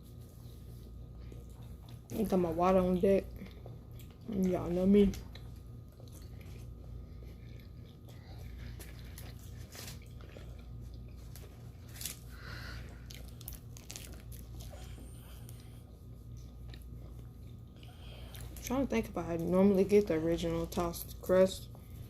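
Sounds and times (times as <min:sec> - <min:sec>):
low electrical hum: 0:00.0 - 0:22.0
person chewing food: 0:00.1 - 0:18.6
food crunching: 0:00.9 - 0:18.7.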